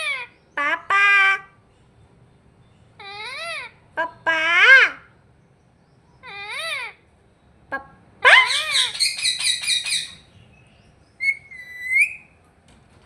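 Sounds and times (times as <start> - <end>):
parrot calling: 0.0 - 1.6, 3.0 - 5.2, 6.2 - 7.1, 7.7 - 10.4, 11.2 - 12.4
parrot rattling chatter: 8.4 - 10.2.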